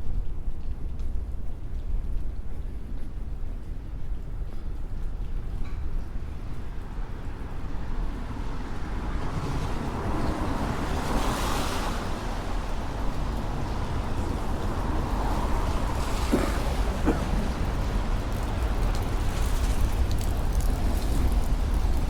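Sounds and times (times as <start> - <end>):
low rumble of traffic: 0.0 - 22.0
car tyres hissing on wet road: 6.8 - 22.0.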